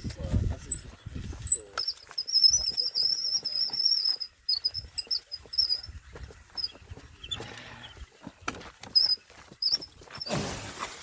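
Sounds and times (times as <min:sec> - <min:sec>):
short high bird chirps: 0:01.5 - 0:05.9.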